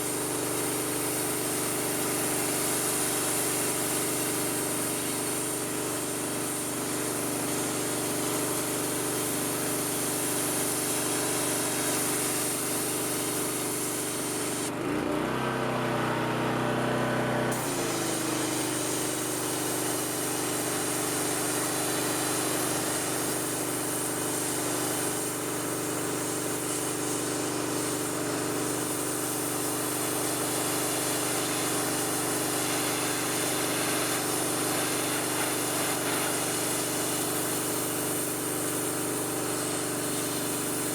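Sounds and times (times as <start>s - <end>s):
water jet hissing: 0.0s - 14.7s, 17.5s - 40.9s
pressure washer engine running: 0.0s - 40.9s.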